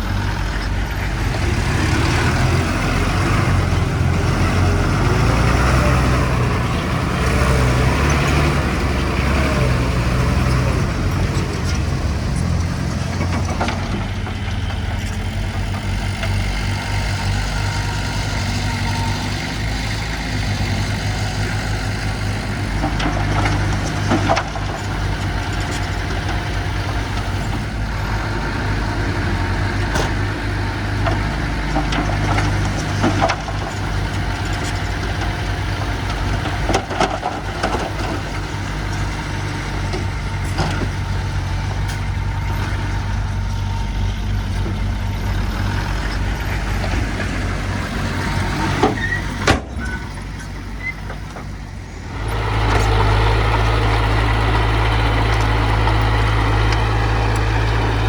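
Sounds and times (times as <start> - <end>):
heavy machinery diesel engine: 0.0 - 58.0
sharp knocks and clanks: 48.2 - 50.3.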